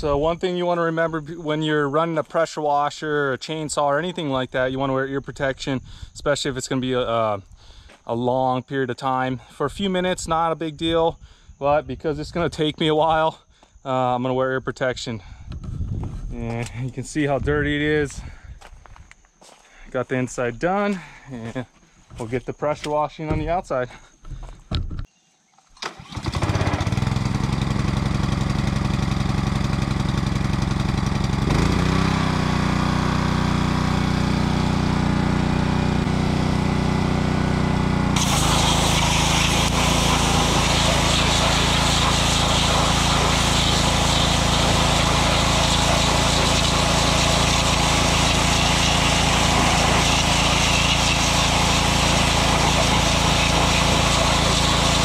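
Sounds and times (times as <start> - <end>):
petrol engine running: 25.9 - 31.9
high-pressure water spray hissing: 38.2 - 55.0.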